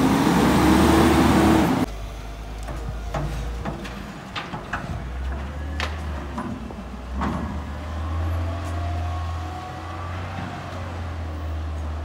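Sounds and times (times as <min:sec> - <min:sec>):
garbage truck engine droning: 0:00.0 - 0:11.8.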